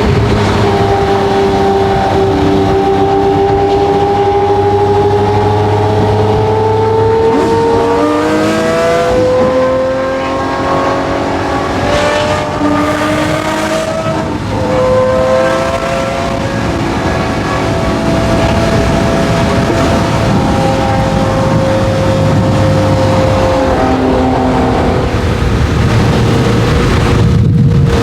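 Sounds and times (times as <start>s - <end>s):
sports car engine accelerating: 0.0s - 28.0s.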